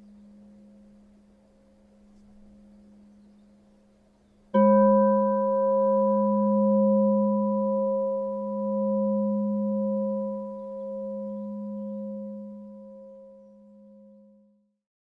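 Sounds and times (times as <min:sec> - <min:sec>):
singing bowl ringing: 0:04.5 - 0:14.5.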